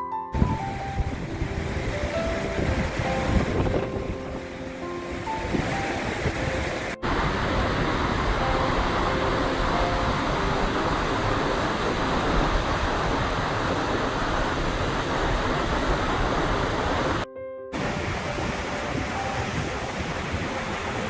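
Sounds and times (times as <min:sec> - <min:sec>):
waterfall roaring: 0:00.4 - 0:17.2, 0:17.8 - 0:21.0.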